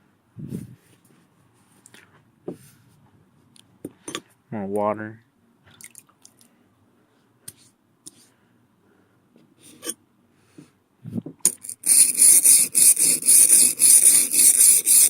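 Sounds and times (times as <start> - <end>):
blade scraping on sharpening stone: 9.7 - 10.0, 11.5 - 15.0.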